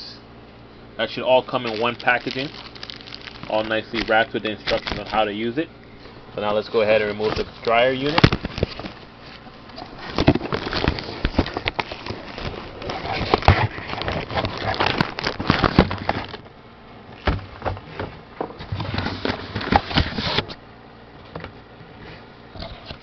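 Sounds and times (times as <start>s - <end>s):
packaging crackling and rustling: 1.5s - 5.6s, 6.7s - 16.5s.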